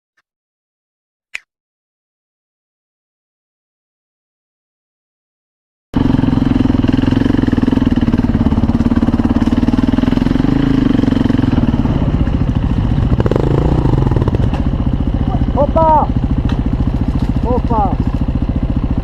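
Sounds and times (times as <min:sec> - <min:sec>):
motorcycle engine running: 0:06.0 - 0:19.0.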